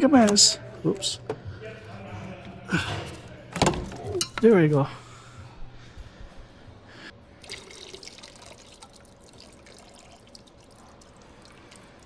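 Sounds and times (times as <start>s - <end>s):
coolant dripping and trickling: 7.4s - 12.0s.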